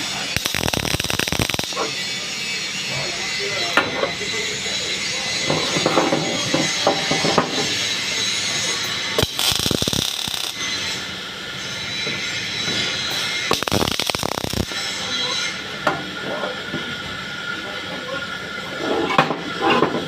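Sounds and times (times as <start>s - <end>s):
welding arc crackling: 0.0s - 2.5s, 7.7s - 11.6s, 12.4s - 15.3s.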